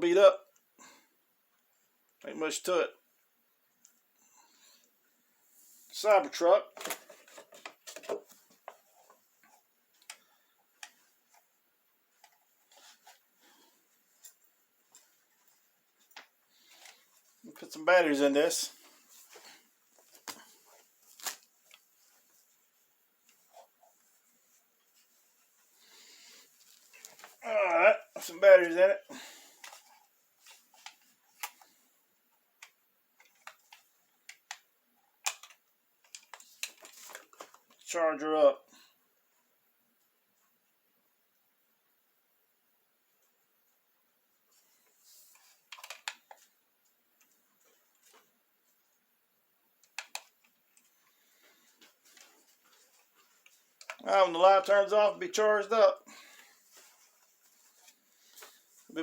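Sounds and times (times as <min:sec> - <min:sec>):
plastic toy parts clicking: 0:35.2 - 0:37.2.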